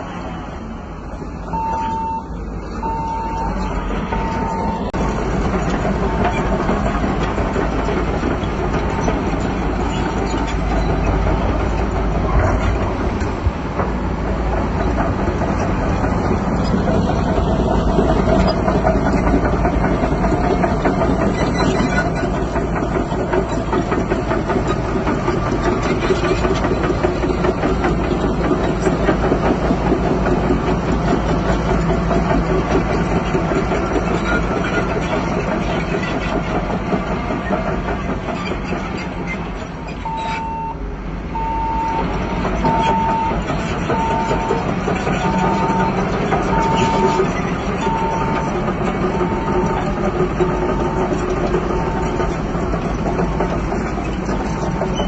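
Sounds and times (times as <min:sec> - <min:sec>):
bulldozer diesel engine running: 0:00.0 - 0:55.0
reversing alarm beeping: 0:01.5 - 0:05.0, 0:40.0 - 0:50.0.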